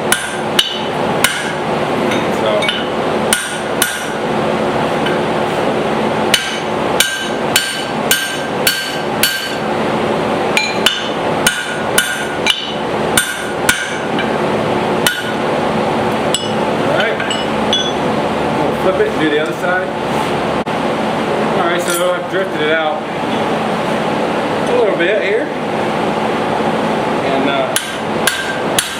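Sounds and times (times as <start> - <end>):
hammer blows on anvil: 0.0 - 4.2, 6.3 - 9.7, 10.6 - 14.4, 15.0 - 15.4, 16.3 - 18.1, 27.7 - 28.9
shop fan running: 0.0 - 28.9.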